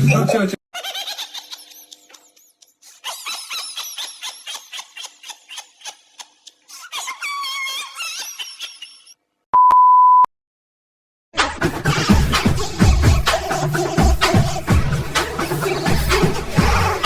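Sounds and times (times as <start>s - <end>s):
high squeaky chirps: 7.0s - 9.2s
short steady beep: 9.6s - 10.3s.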